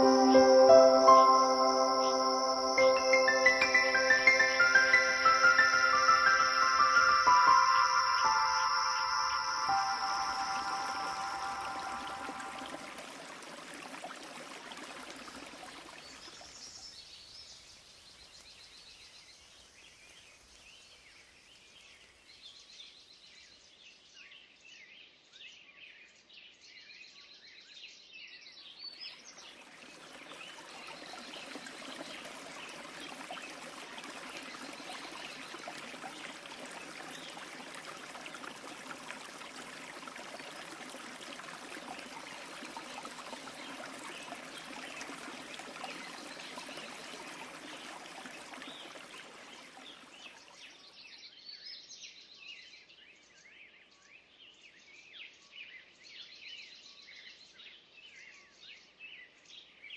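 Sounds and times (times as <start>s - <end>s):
waterfall rushing: 0.0s - 13.7s.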